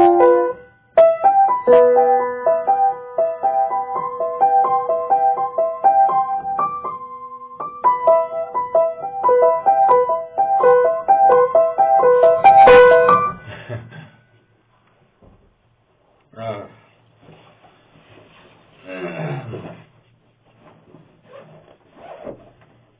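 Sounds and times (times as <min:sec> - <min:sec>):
keyboard playing bouncing melody: 0:00.0 - 0:13.3.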